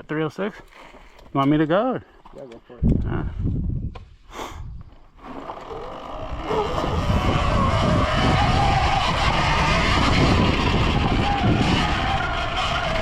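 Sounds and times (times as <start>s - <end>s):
wind rush and trail noise: 2.8s - 4.9s, 5.6s - 13.0s
electric motor whining: 5.2s - 13.0s.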